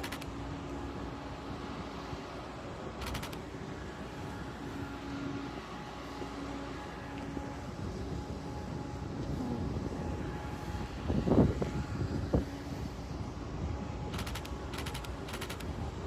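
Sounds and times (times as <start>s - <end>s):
ship engines rumbling: 0.0s - 16.0s
rapid rattling clicks: 14.2s - 15.7s.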